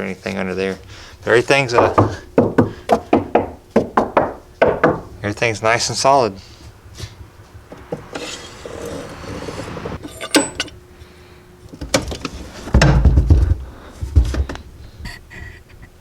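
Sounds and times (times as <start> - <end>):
sharp knocks: 1.7 - 5.2
rustling in car trunk: 6.4 - 10.6.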